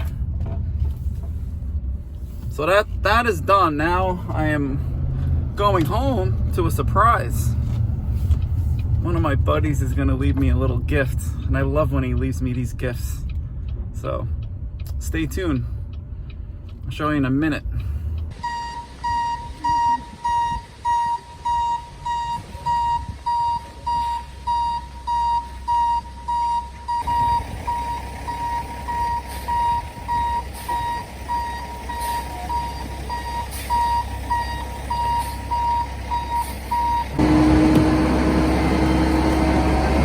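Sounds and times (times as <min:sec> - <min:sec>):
low engine rumble: 0:00.0 - 0:40.0
louder engine humming: 0:17.9 - 0:40.0
reversing alarm beeping: 0:18.4 - 0:40.0.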